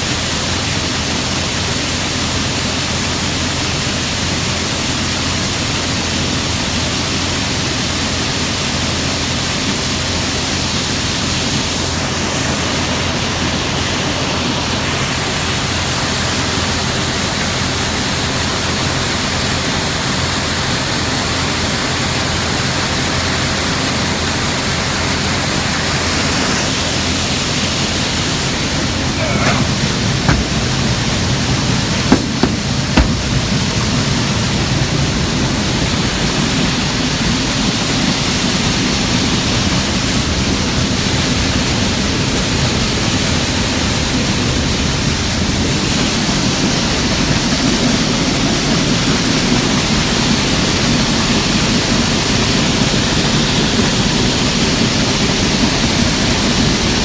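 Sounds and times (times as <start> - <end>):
sharp knocks: 29.2 - 31.2, 32.0 - 33.6.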